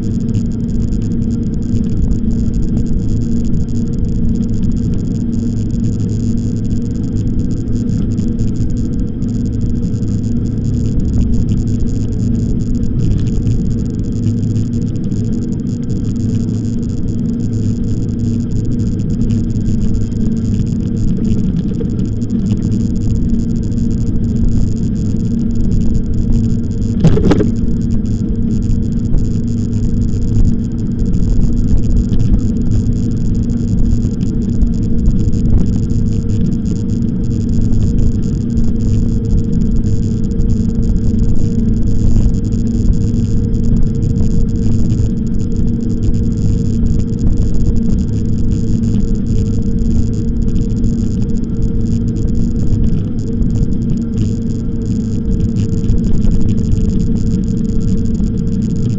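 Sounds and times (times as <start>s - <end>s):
e-bike riding rumble: 0.0s - 58.9s
sharp knock: 27.0s - 27.6s.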